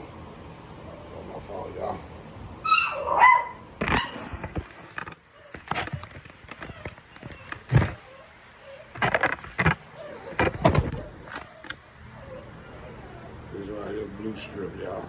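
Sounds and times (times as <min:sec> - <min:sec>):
puppy yelping: 0:02.6 - 0:04.5, 0:05.2 - 0:13.8
clicks and knocks: 0:09.0 - 0:11.8.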